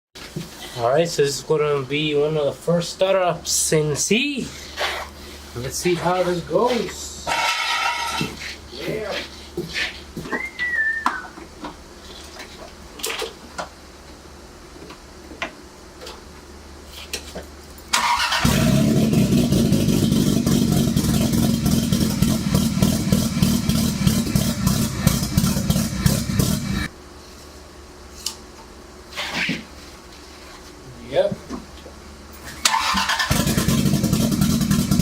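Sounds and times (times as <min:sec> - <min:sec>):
car engine cranking: 0:17.9 - 0:26.9, 0:32.6 - 0:35.0
car engine running: 0:18.4 - 0:26.9, 0:33.3 - 0:35.0.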